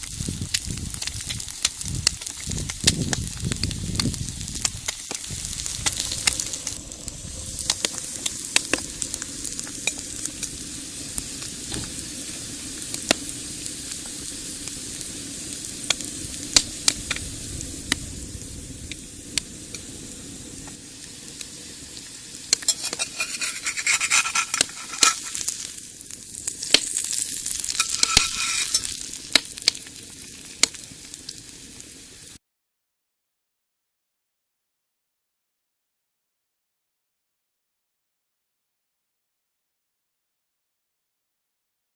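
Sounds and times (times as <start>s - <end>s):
sharp pops and crackles: 0.0s - 18.1s, 20.6s - 31.5s
egg sizzling in a pan: 0.0s - 32.4s.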